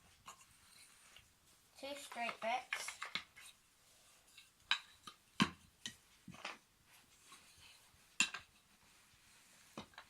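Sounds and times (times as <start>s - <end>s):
wooden toy track pieces clacking: 2.0s - 3.5s.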